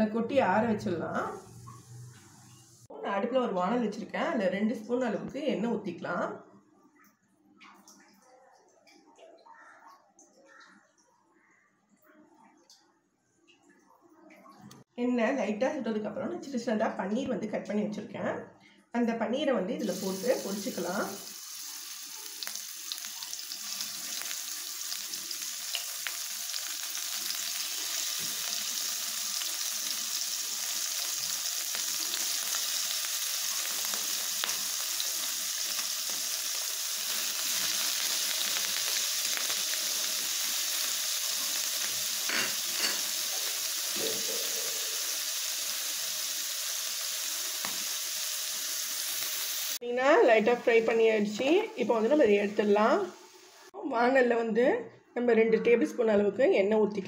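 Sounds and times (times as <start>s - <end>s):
food sizzling in hot oil: 1.2s - 2.9s, 19.8s - 49.8s
spoon knocking in pan: 42.2s - 43.2s.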